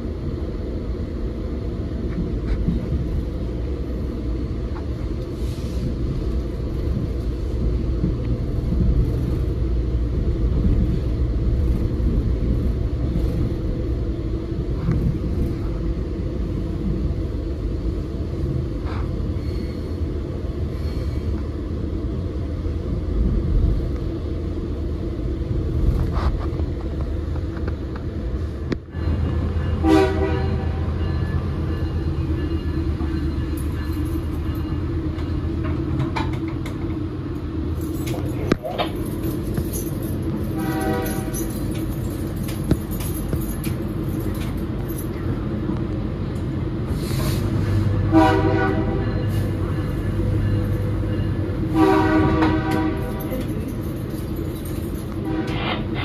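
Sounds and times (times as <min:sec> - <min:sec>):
train rumbling: 0:00.0 - 0:56.0
train horn blast: 0:29.8 - 0:31.0, 0:40.5 - 0:41.5, 0:47.8 - 0:49.5, 0:51.6 - 0:53.4, 0:55.2 - 0:55.9.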